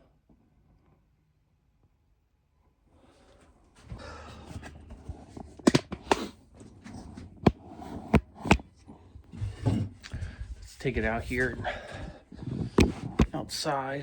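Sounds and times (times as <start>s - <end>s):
sharp knocks and clicks: 7.4s - 8.7s, 12.8s - 13.4s.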